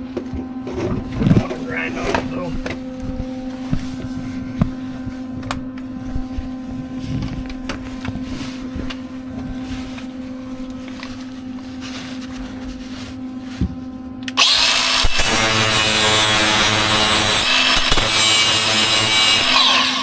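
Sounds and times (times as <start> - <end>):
steady low hum: 0.0 - 20.0
angle grinder grinding metal: 14.4 - 20.0.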